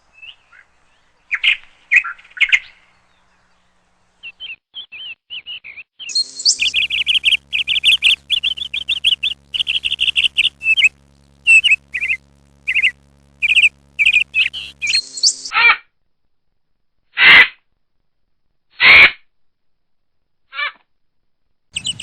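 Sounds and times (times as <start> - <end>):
bird chirping: 0.0 - 15.5, 21.8 - 22.0
low hum: 6.1 - 15.5, 21.8 - 22.0.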